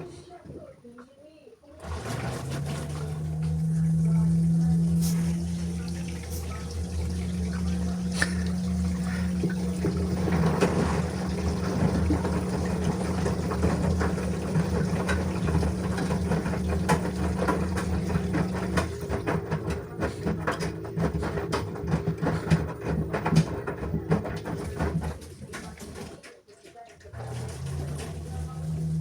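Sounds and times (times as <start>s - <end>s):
washing machine hum: 0.0s - 29.0s
water rushing and splashing: 1.8s - 19.8s.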